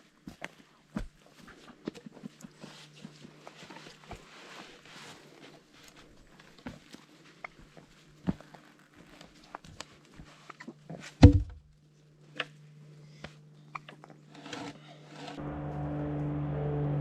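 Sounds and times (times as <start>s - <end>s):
loud thump: 11.2s - 11.6s.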